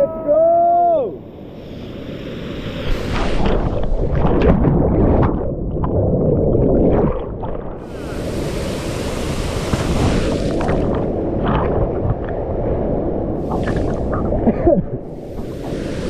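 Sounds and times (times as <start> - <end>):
rushing water and waterfall hiss: 0.6 - 3.5, 7.8 - 11.2, 13.3 - 16.0
muffled underwater bubbling rumble: 2.9 - 16.0.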